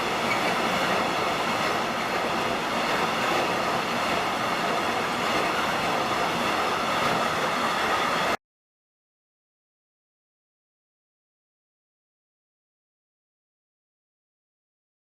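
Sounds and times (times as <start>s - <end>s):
train wheels rushing on rail: 0.0s - 8.4s.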